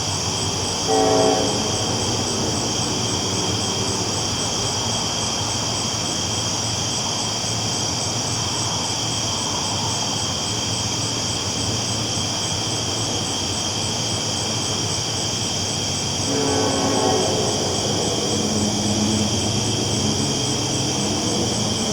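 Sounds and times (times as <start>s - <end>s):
train rumbling on tracks: 0.0s - 21.9s.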